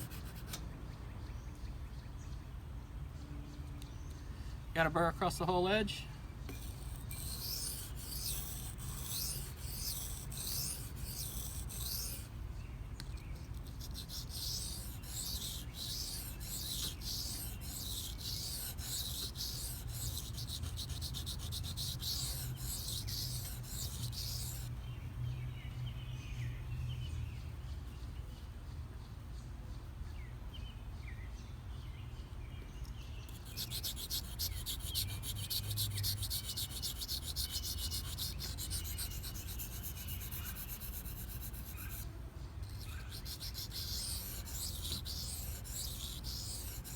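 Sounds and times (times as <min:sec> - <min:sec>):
blade scraping on sharpening stone: 0:06.5 - 0:12.3, 0:13.6 - 0:24.7, 0:33.3 - 0:42.0, 0:42.6 - 0:46.9.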